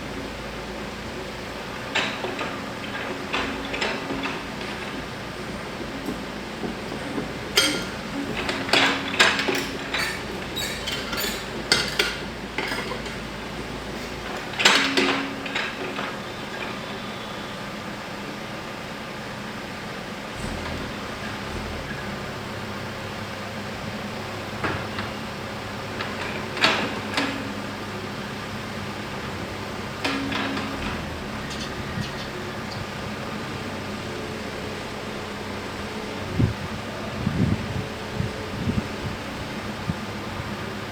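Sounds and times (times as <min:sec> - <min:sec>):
metallic clanks and knocks: 0:06.0 - 0:13.3, 0:30.0 - 0:32.9.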